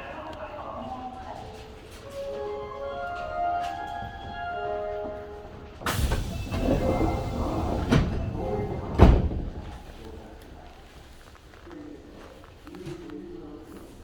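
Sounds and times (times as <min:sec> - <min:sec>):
sliding doors closing with thud: 0:03.7 - 0:10.7.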